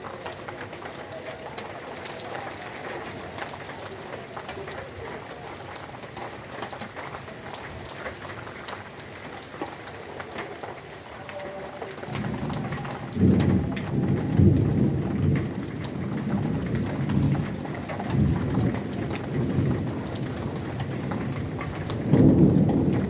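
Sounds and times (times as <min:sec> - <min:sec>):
heavy rain pouring: 0:00.0 - 0:23.0
raindrops ticking on surfaces: 0:00.0 - 0:23.0
rolling thunder: 0:12.1 - 0:23.0.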